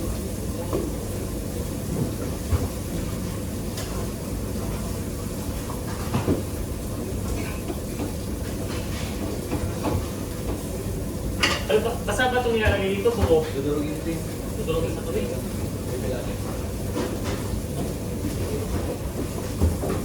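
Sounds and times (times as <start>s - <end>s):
low kitchen rumble: 0.0s - 20.0s
pans and utensils clinking: 11.4s - 11.9s.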